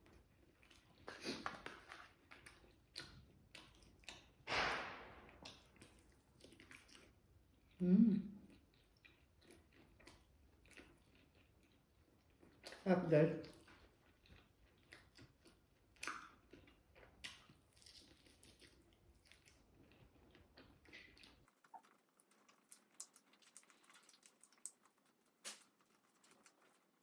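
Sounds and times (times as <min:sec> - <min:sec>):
faint chewing: 0:00.0 - 0:04.4, 0:05.3 - 0:27.0.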